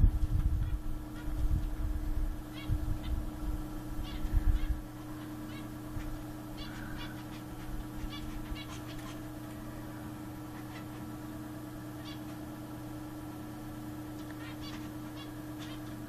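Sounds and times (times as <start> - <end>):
steady low hum: 0.0 - 16.0
finches nasal beeping calls: 2.5 - 3.3, 4.0 - 9.3, 10.4 - 11.2, 12.0 - 12.4, 14.3 - 16.0.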